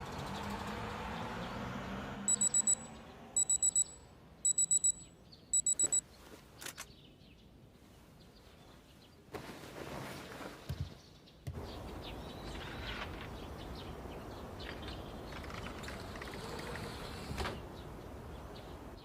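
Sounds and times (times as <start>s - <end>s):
digital alarm clock beeping: 2.3s - 6.0s.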